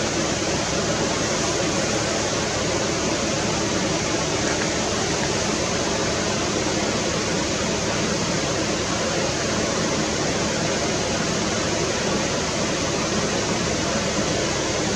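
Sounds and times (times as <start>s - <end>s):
flowing water: 0.0s - 14.9s.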